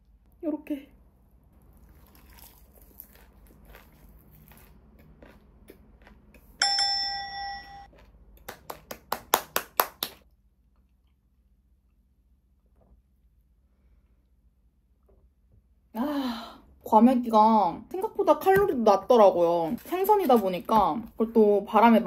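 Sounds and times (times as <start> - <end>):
bright bell-like ding: 6.6 - 7.9.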